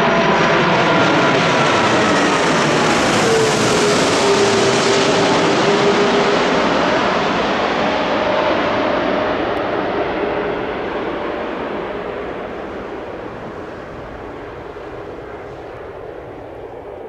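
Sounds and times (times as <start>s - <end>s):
jet engines passing overhead: 0.0s - 17.0s.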